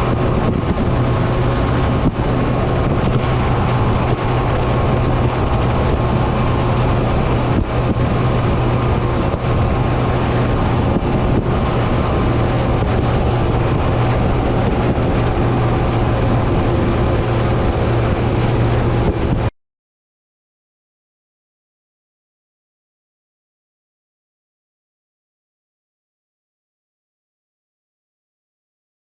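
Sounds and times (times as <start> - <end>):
boat engine running steadily: 0.0 - 19.5
wind buffeting microphone: 0.0 - 19.5.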